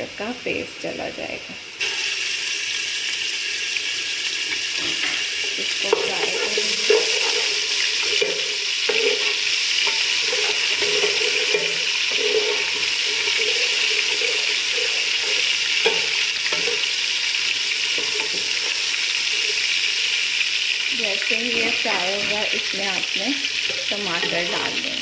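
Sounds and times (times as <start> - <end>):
paste sizzling in hot oil: 1.6 - 25.0
metal spoon scraping pot: 4.5 - 17.0, 17.8 - 19.7.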